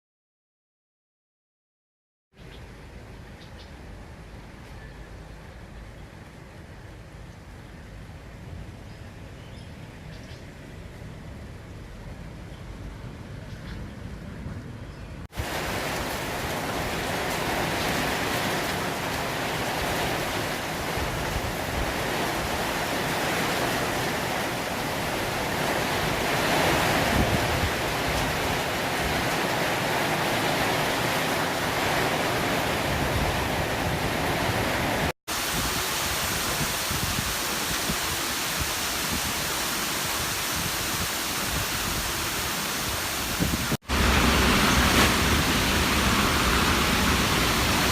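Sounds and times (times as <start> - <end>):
gusting wind: 2.7 - 47.9
heavy rain pouring: 15.3 - 47.9.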